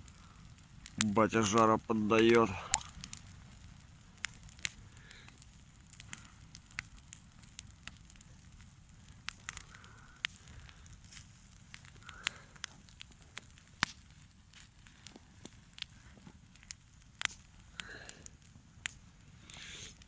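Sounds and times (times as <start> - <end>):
low steady background: 0.0 - 13.0
firewood crackling and popping: 0.0 - 20.0.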